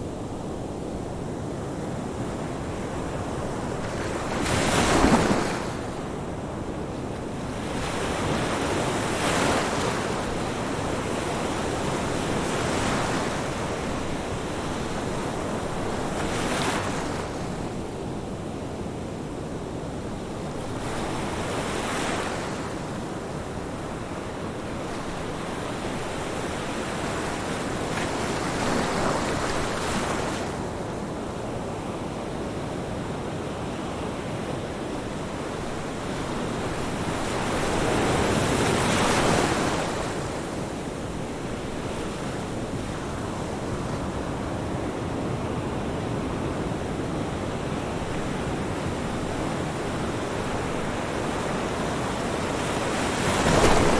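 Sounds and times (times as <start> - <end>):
ocean waves breaking: 3.0 - 6.0, 47.5 - 53.9.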